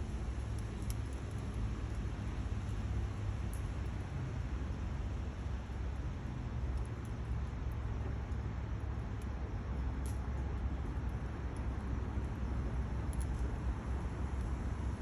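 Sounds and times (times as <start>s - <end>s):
fire crackles: 0.0s - 15.0s
wood fire rumbling in stove: 0.0s - 15.0s.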